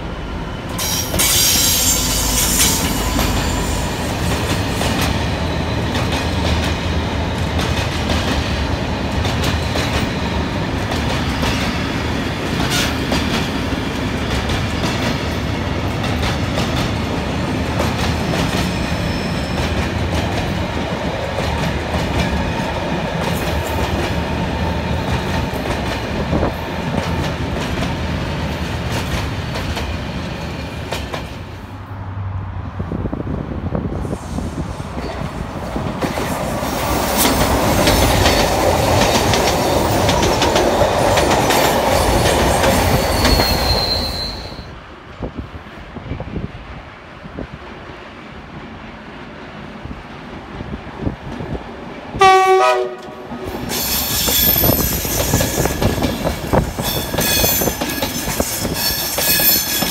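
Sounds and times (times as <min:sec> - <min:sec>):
diesel locomotive engine: 0:00.0 - 0:59.9
wheels clacking over rail joints: 0:35.8 - 0:43.8.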